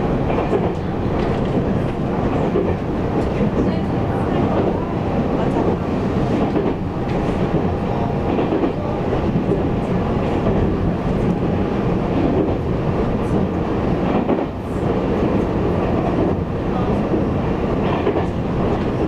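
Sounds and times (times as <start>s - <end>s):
train wheels rumbling on rail: 0.0s - 19.0s
clickety-clack of wheels: 0.2s - 3.7s, 17.1s - 19.0s.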